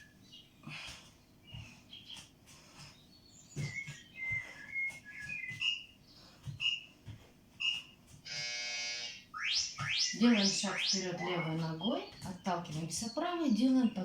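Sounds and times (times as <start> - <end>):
buzzy tone: 8.3 - 12.1
high whistled chirps: 9.3 - 12.2.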